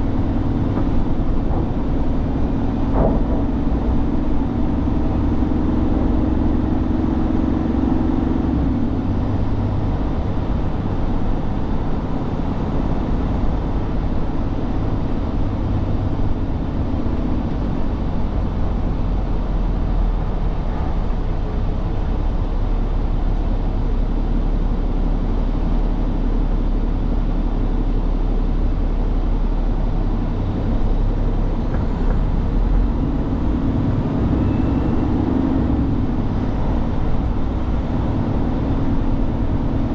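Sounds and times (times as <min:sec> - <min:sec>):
truck engine and road drone: 0:00.0 - 0:39.9.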